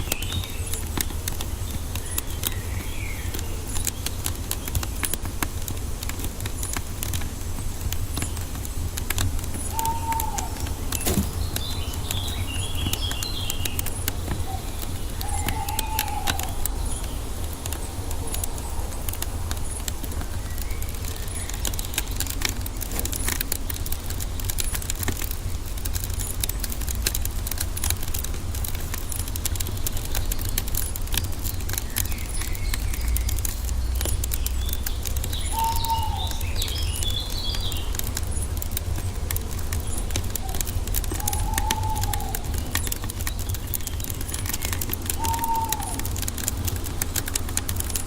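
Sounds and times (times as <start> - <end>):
birds whistling calls: 0.0 - 48.0
wood fire crackling: 0.0 - 48.0
high bird twittering: 8.2 - 24.9, 28.8 - 46.8.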